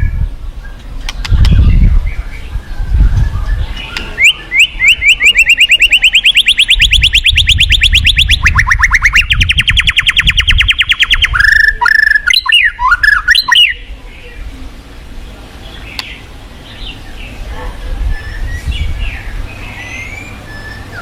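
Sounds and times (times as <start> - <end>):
bird singing whistled trill: 1.6 - 13.9, 18.1 - 21.0.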